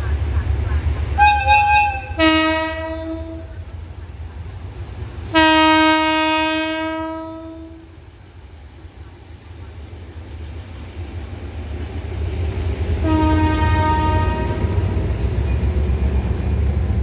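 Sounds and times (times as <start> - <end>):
locomotive air horn blasts: 1.2 - 3.6, 5.3 - 7.9, 13.0 - 15.0.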